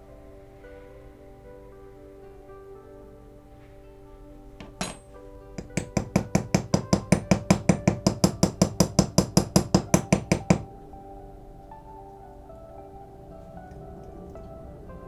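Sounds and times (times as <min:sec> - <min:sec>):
small hammer tapping metal: 0:04.6 - 0:10.7.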